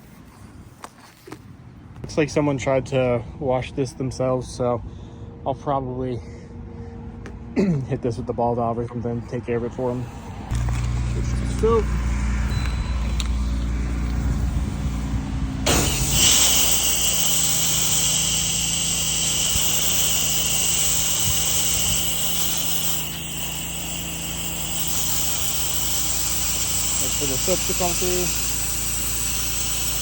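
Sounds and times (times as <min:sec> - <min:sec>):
engine running: 0:09.1 - 0:30.0
pressure washer spraying water: 0:10.5 - 0:30.0.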